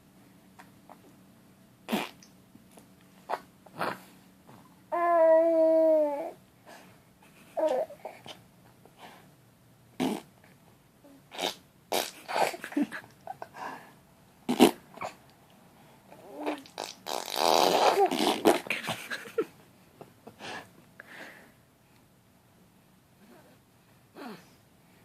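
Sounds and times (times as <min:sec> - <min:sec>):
baby blowing raspberries: 0:01.9 - 0:02.3, 0:10.0 - 0:10.3, 0:11.3 - 0:12.6, 0:14.5 - 0:15.2, 0:16.4 - 0:18.7.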